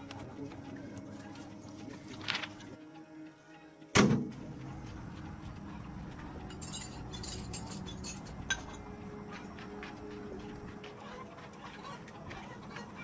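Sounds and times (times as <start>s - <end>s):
steady background noise: 0.0s - 13.0s
light clinks and ticks: 6.4s - 8.9s.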